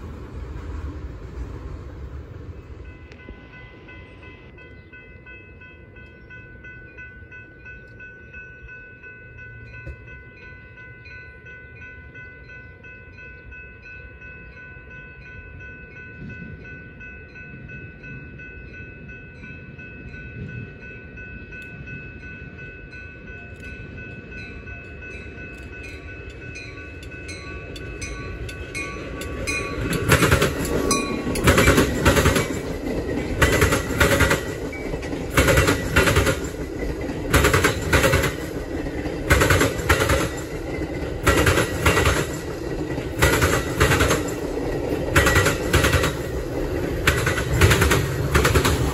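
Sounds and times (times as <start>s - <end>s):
train rumble: 0.0s - 48.9s
train wheels clacking: 23.5s - 48.9s.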